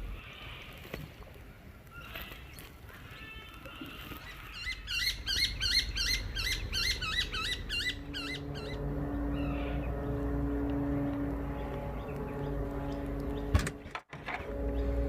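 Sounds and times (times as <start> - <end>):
bird swooping chirps: 4.6 - 10.2
low motor hum: 5.1 - 15.0.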